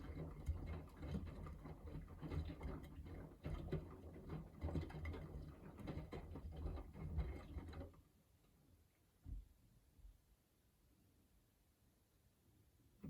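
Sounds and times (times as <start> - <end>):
washing machine tumbling laundry: 0.0 - 8.2.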